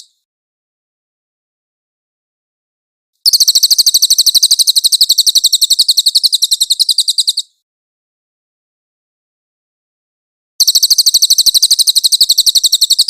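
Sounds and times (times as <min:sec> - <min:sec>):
songbird rolling trill: 0:03.3 - 0:07.5, 0:10.6 - 0:13.0.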